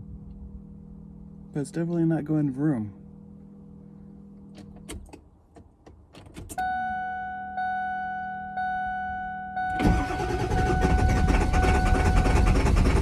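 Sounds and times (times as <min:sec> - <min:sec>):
warning chime dinging: 0:06.6 - 0:12.0
truck engine cranking on starter: 0:09.7 - 0:13.0.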